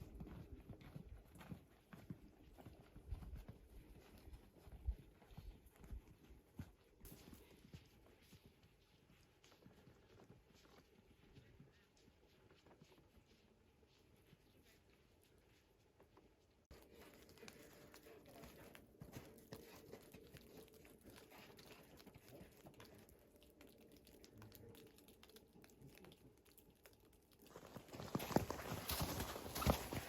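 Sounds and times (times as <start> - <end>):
footsteps crunching on forest floor: 27.4 - 30.0.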